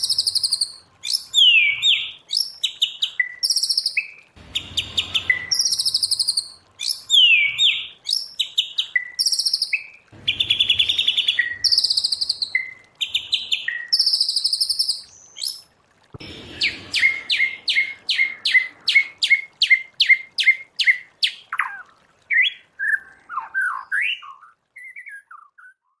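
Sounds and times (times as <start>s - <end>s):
bird singing whistled phrases: 0.0s - 15.6s, 16.5s - 26.0s.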